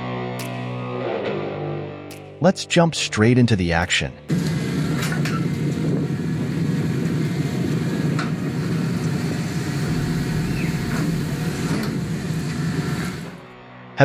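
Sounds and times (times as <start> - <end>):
diesel machinery engine running: 4.3 - 13.6.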